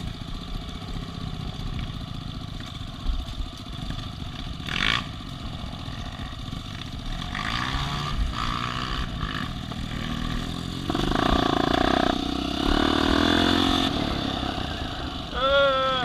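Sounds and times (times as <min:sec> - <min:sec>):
off-road vehicle engine revving: 0:04.6 - 0:16.0.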